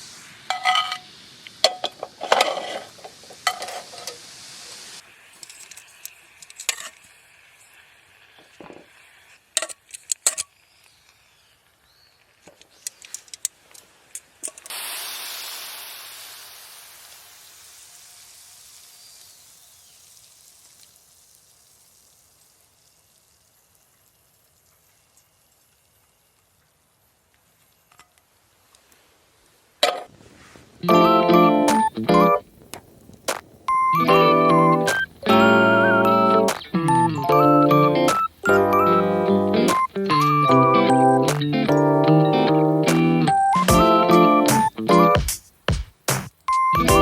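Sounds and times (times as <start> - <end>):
hot pan sizzling: 0.0 - 47.0
metal utensil scraping a pan: 0.5 - 1.1, 1.7 - 4.2, 6.6 - 7.0.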